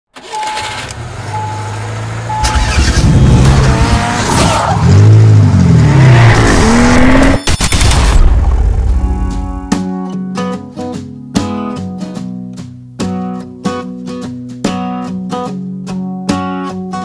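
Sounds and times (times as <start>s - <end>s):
car engine revving: 0.2s - 9.7s
short beeps: 0.3s - 2.9s.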